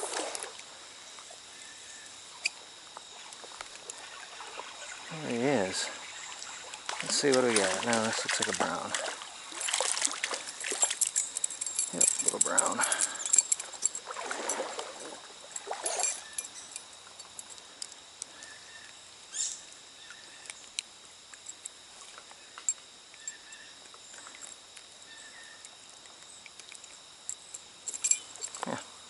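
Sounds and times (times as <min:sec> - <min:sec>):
faint stream: 0:00.0 - 0:29.0
faint chirps: 0:01.2 - 0:08.5, 0:15.8 - 0:20.8, 0:22.3 - 0:29.0
fish splashing in water: 0:03.1 - 0:11.4, 0:12.2 - 0:16.4.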